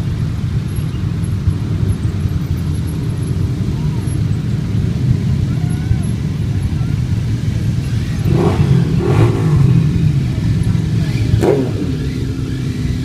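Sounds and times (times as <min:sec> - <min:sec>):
vehicle engines running and revving: 0:00.0 - 0:13.0.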